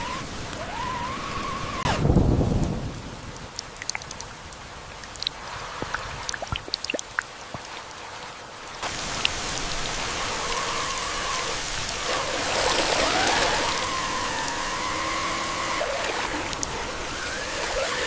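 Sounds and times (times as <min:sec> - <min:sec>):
rushing water: 0:00.0 - 0:18.0
water drips and splats: 0:01.8 - 0:18.0
thin whine rising in pitch: 0:10.3 - 0:18.0.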